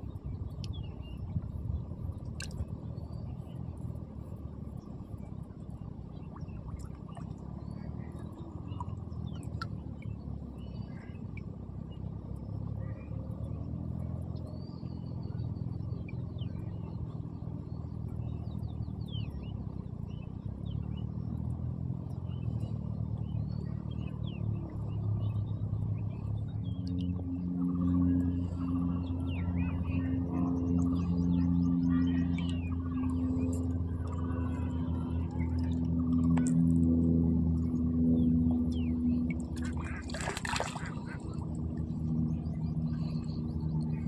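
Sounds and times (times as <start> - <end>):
steady low rumble: 0.0 - 44.0
small birds chirping: 37.6 - 44.0.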